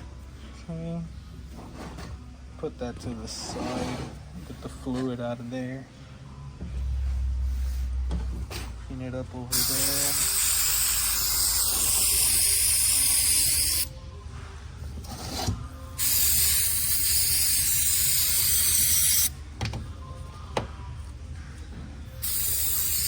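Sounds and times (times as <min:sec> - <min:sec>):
aerosol spray hissing: 0:09.5 - 0:13.9, 0:16.0 - 0:19.3, 0:22.2 - 0:23.0.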